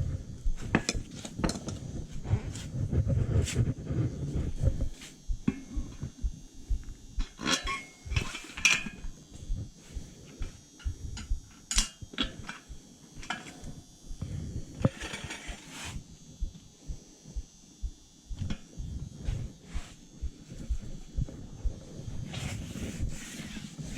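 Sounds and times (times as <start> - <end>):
tool scraping on tire: 14.8 - 16.0.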